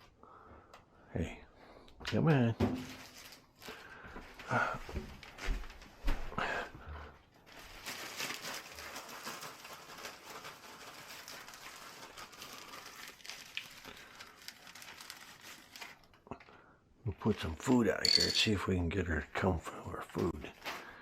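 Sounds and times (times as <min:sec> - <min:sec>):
rustling and crinkling: 0:02.6 - 0:06.4, 0:07.1 - 0:16.5, 0:20.0 - 0:21.0.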